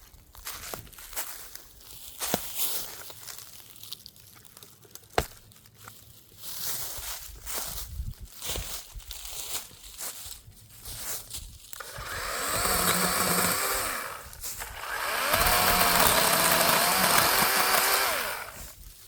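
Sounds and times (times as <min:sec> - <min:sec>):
electric chainsaw cutting wood: 0:11.8 - 0:18.8.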